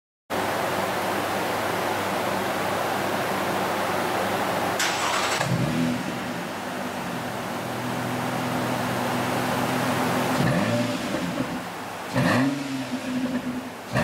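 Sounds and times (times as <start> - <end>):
car exhaust deep low note: 10.3 - 14.0.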